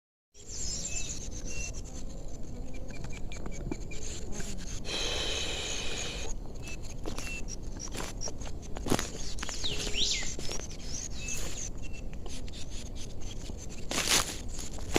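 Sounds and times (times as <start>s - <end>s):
high bird chirps: 9.2s - 12.1s.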